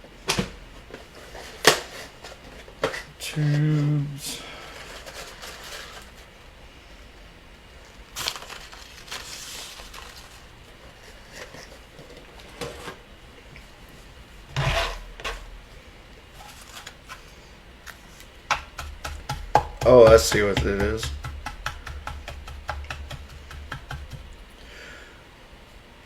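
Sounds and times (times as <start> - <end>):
loud knock: 18.5 - 24.3
machine clicks and taps: 18.5 - 24.4.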